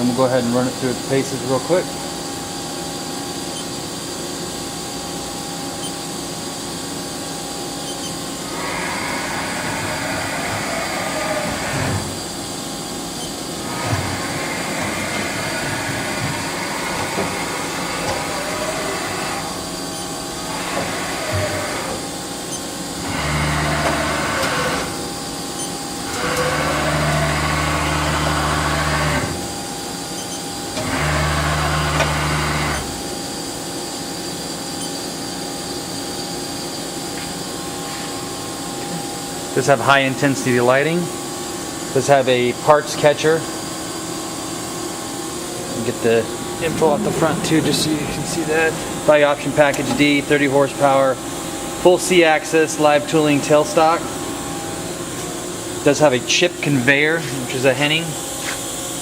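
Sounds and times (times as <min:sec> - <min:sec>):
steady machine hum: 0:43.2 - 0:59.0
loud low hum: 0:45.4 - 0:58.4.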